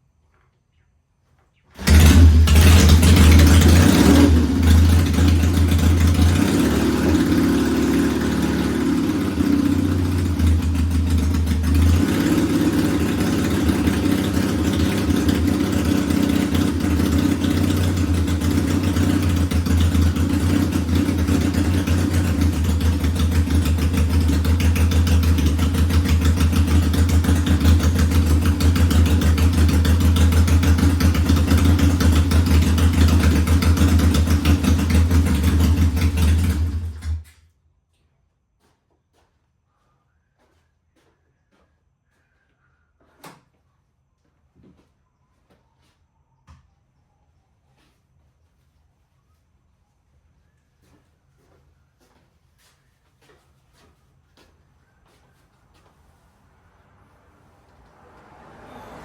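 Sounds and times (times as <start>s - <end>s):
motorcycle engine idling: 1.8s - 37.2s.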